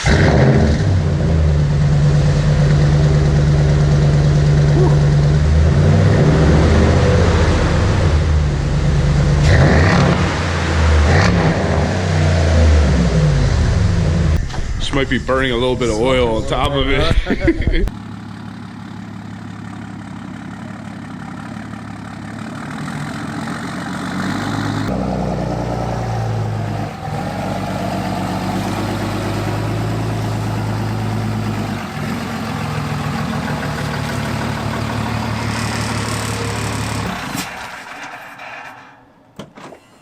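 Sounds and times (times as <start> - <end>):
truck engine idling: 1.1 - 6.0, 13.1 - 24.9, 25.5 - 38.4.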